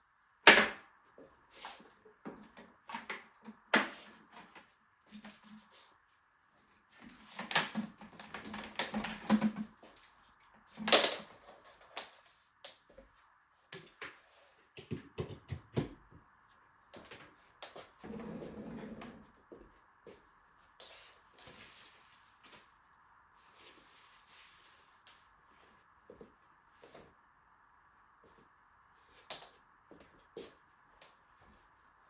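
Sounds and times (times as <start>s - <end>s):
rustling: 20.8s - 27.1s.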